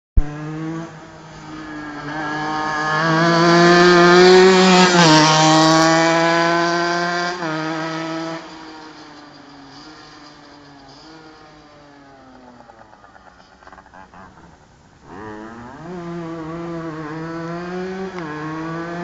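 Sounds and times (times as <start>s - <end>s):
two-stroke kart engine running hard: 0.4s - 11.5s.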